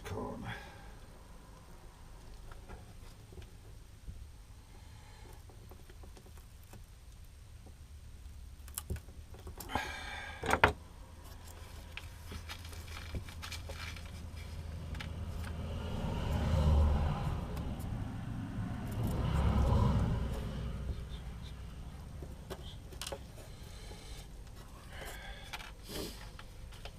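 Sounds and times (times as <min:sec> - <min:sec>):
low rumble: 0:14.0 - 0:22.8.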